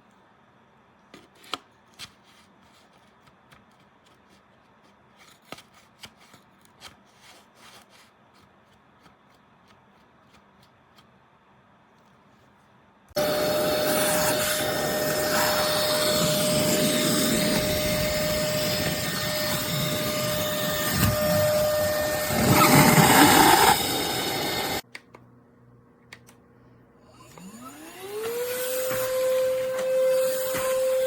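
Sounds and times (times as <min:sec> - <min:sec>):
stick vacuum cleaner whining: 0:13.1 - 0:24.8, 0:27.1 - 0:31.0.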